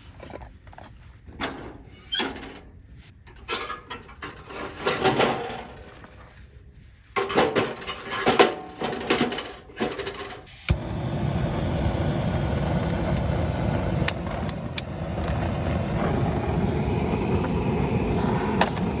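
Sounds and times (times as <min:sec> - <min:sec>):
firewood clinking and clattering: 0:03.3 - 0:06.4, 0:07.1 - 0:10.5.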